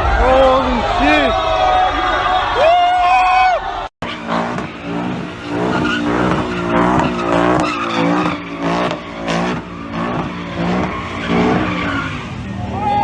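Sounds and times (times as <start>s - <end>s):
car engine revving: 4.0s - 13.0s
tyres squealing: 4.1s - 13.0s.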